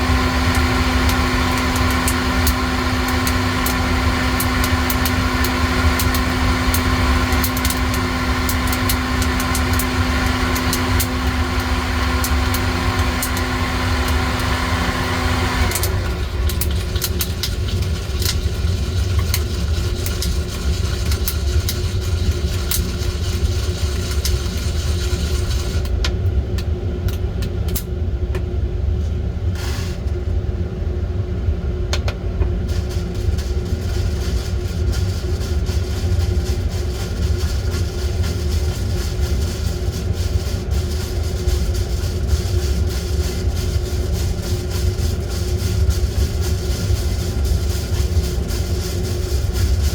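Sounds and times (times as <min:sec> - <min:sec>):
coffee beans crackling: 0:00.0 - 0:25.9, 0:32.7 - 0:49.9
motor humming: 0:00.0 - 0:25.9
roasting equipment low rumble: 0:00.0 - 0:49.9.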